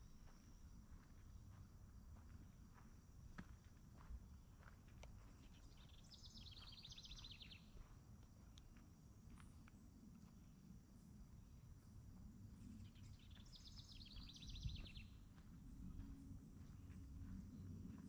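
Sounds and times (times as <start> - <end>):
faint songbird trill: 5.2 - 7.8, 12.6 - 15.4.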